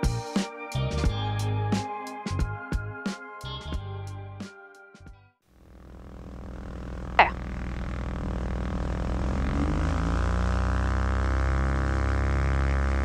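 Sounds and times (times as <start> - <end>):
aircraft engines revving: 5.8 - 13.0.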